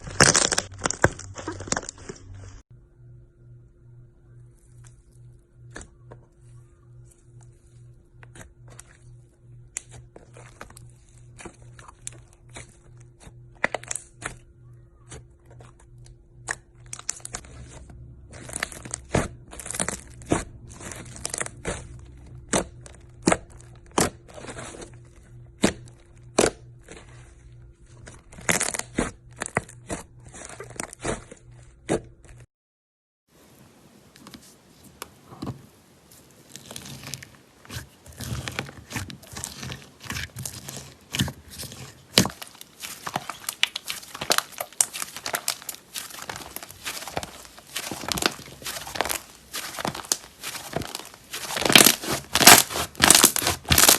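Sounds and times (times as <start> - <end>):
faint steady hum: 0.0 - 32.4.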